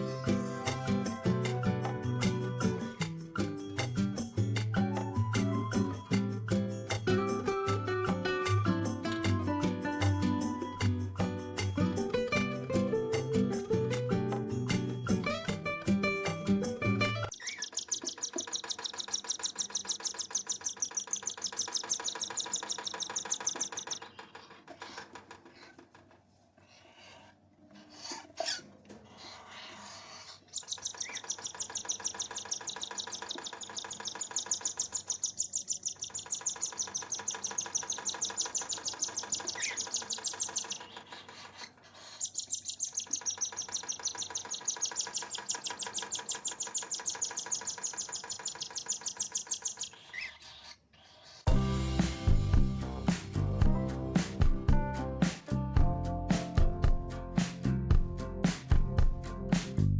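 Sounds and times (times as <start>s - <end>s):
bird chirping rapidly: 14.7s - 24.6s, 30.3s - 50.8s.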